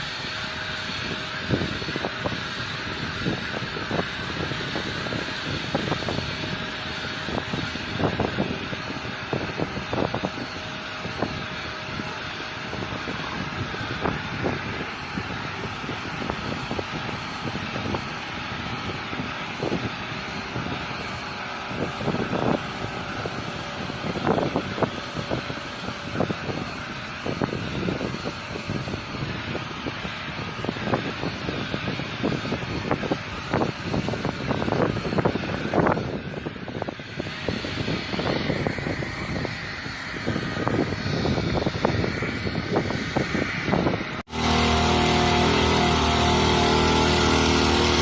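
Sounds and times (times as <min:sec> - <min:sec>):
machine engine droning: 0:00.0 - 0:48.0
wind buffeting microphone: 0:00.0 - 0:48.0.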